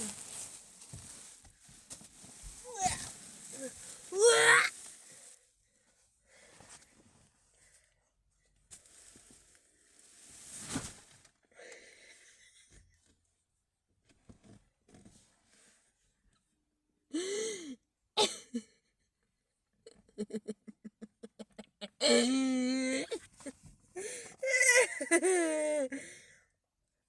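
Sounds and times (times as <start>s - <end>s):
person grunting: 4.2s - 4.7s, 22.0s - 23.1s
person breathing and wheezing: 17.1s - 17.8s, 24.0s - 24.5s, 25.2s - 26.4s
person coughing: 18.2s - 18.6s.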